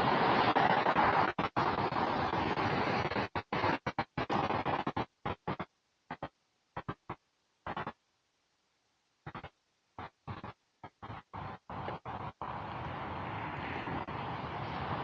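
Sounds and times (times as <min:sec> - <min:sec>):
wind on microphone: 0:00.0 - 0:04.9, 0:10.3 - 0:15.0.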